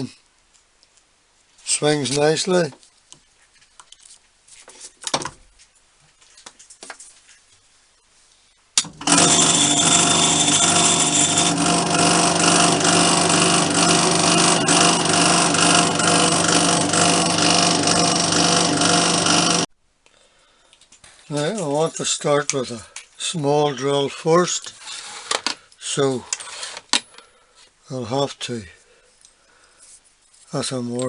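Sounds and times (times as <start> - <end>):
power tool running: 8.8 - 19.7.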